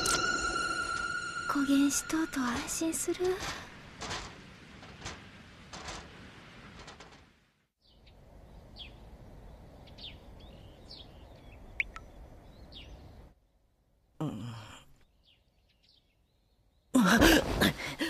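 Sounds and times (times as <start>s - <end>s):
small birds chirping: 7.8s - 13.7s, 15.0s - 17.0s.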